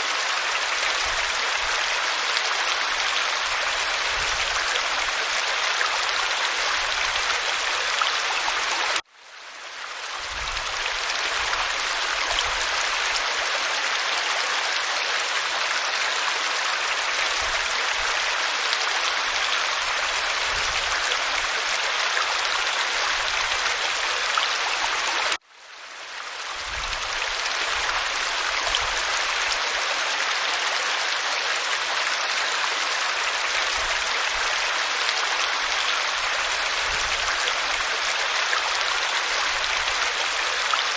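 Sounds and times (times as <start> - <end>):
waterfall rushing: 27.0 - 40.9.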